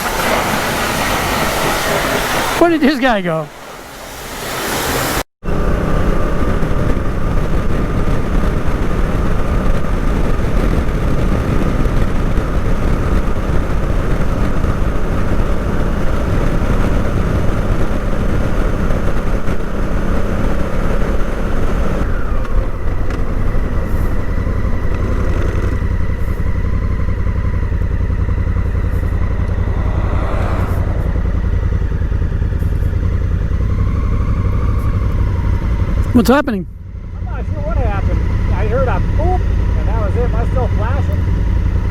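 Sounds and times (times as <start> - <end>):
motorcycle engine running: 5.4 - 36.1, 36.7 - 41.9
steady rushing noise: 27.9 - 33.1.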